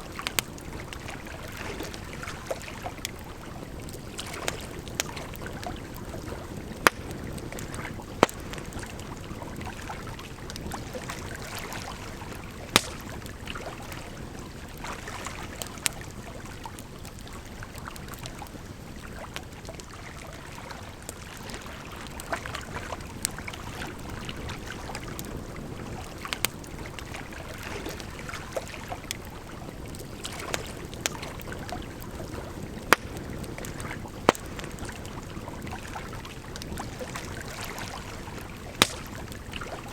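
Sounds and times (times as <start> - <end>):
campfire crackling: 0.0 - 39.9
sharp wood pops: 6.8 - 7.1, 8.2 - 8.5, 12.8 - 13.2, 32.9 - 33.2, 34.3 - 34.5, 38.8 - 39.2
flowing water rushing: 18.7 - 39.9.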